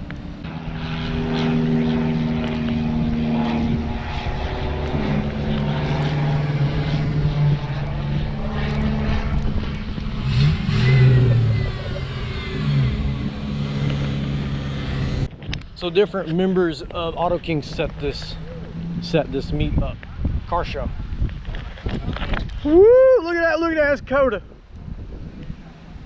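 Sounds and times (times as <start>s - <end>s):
car engine running: 0.0s - 15.3s, 16.8s - 19.8s.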